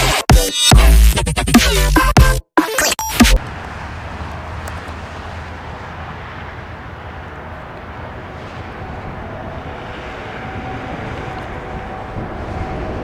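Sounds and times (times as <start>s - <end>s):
jet engines rumbling and roaring: 3.2s - 13.0s.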